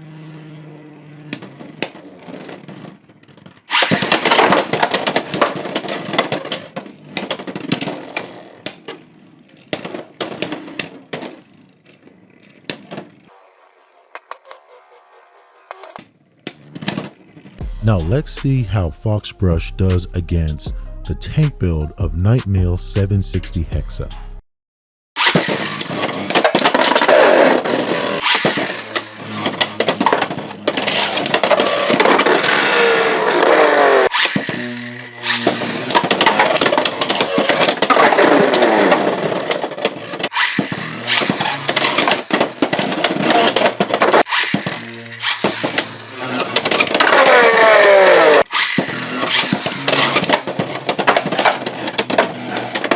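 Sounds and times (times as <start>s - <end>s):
spinning tops colliding: 25.2s - 52.9s.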